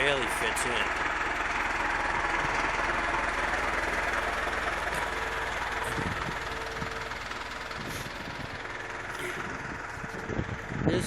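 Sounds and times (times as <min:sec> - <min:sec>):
heavy vehicle engine rumbling: 0:00.0 - 0:11.0.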